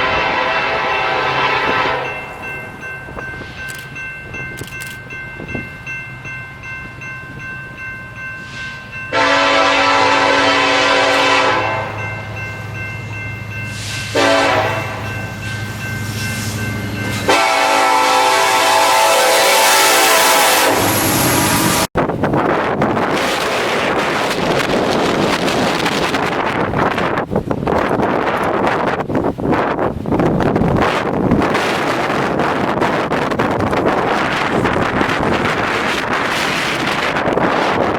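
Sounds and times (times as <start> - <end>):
locomotive air horn blasts: 0.0 - 2.2, 8.5 - 12.0, 13.7 - 15.2, 17.2 - 21.9
diesel locomotive engine drone: 0.0 - 37.9.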